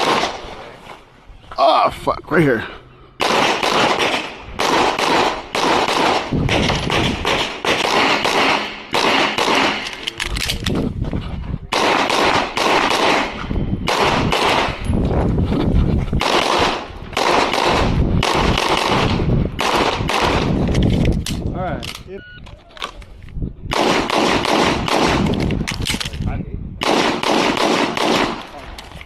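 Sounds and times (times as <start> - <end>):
rapid pistol fire: 3.2 - 9.9, 11.7 - 14.8, 16.2 - 20.6, 23.7 - 25.4, 26.8 - 28.4.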